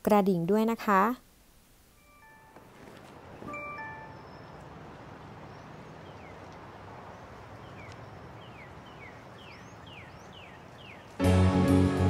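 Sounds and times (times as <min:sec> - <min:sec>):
background hiss: 0:00.0 - 0:12.0
birds chirping: 0:02.0 - 0:11.2.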